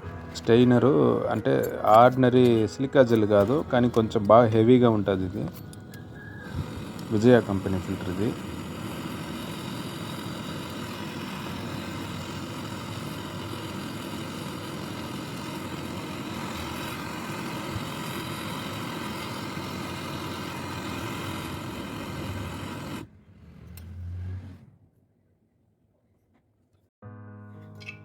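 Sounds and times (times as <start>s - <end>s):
machine mechanical drone: 3.4s - 24.8s.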